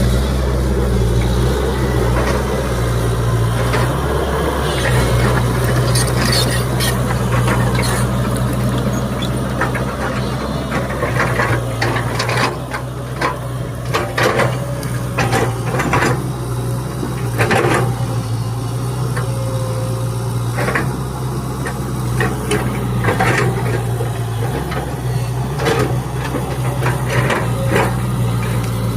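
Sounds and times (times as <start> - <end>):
excavator diesel engine running: 0.0 - 28.9
clanks and rattles: 4.8 - 18.2, 21.6 - 28.9.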